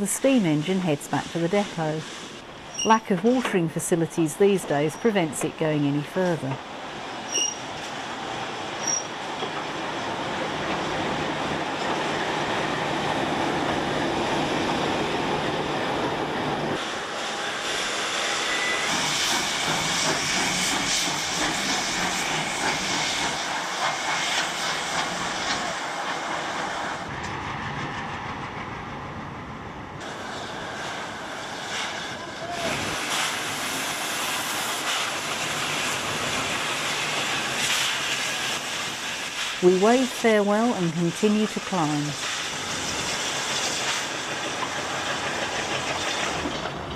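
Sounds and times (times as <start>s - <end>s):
train wheels on track: 0.0s - 46.9s
high wheel squeals: 2.7s - 3.0s, 7.2s - 7.7s, 8.8s - 9.1s.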